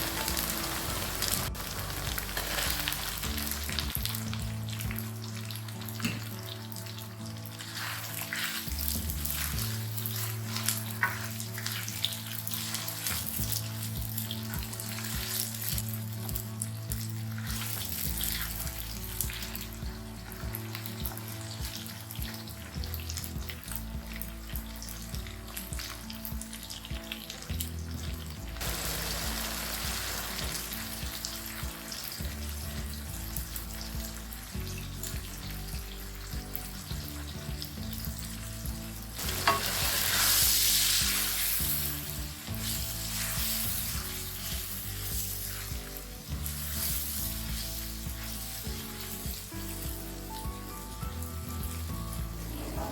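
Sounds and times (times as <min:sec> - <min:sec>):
background music: 0:00.0 - 0:52.9
food sizzling in hot oil: 0:00.0 - 0:52.9
stirring in a wok: 0:39.2 - 0:48.6.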